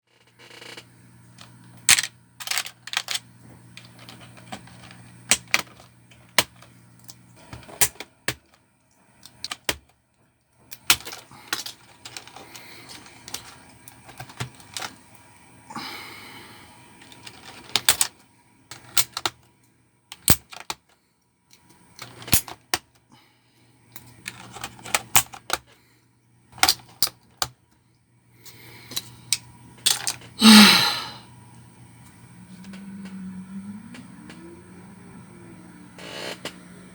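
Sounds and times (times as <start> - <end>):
keyboard parts rattling: 0.1 - 15.1, 17.0 - 23.0, 23.9 - 25.8, 26.6 - 27.6, 28.9 - 30.4
keyboard parts clattering: 0.1 - 15.2, 16.9 - 23.0, 23.9 - 25.8, 26.6 - 27.6, 28.9 - 30.6
plastic keyboard clicks: 9.3 - 9.9.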